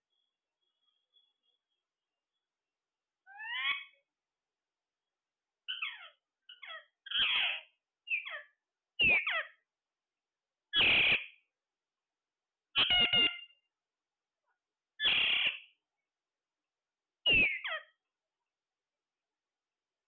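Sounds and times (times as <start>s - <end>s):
parrot harsh calls: 3.3s - 4.0s, 5.7s - 9.6s, 10.7s - 11.4s, 12.8s - 13.6s, 15.0s - 15.7s, 17.3s - 18.0s.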